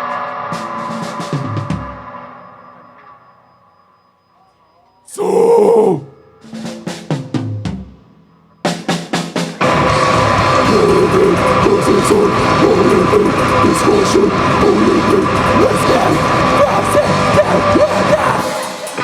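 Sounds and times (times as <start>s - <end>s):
rock band playing: 9.3s - 19.0s.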